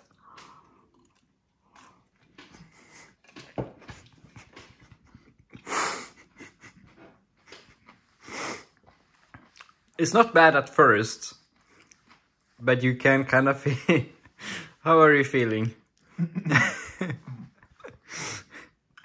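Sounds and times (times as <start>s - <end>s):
man chewing food: 0.0s - 10.0s, 11.4s - 12.6s, 17.3s - 19.0s
heavy breaths: 1.7s - 9.5s, 14.2s - 14.8s, 18.0s - 18.9s.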